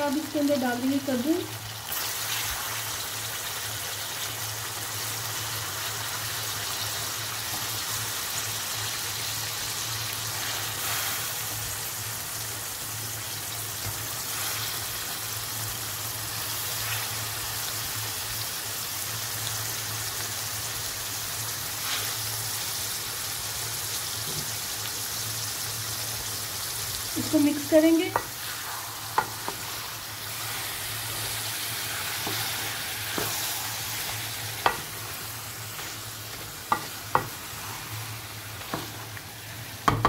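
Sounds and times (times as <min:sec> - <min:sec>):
food sizzling in oil: 0:00.0 - 0:40.0.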